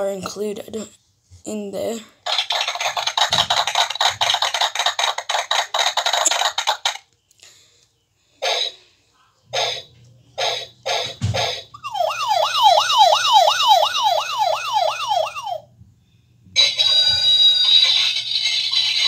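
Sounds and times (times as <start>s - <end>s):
electronic siren effect wailing: 11.8s - 15.7s.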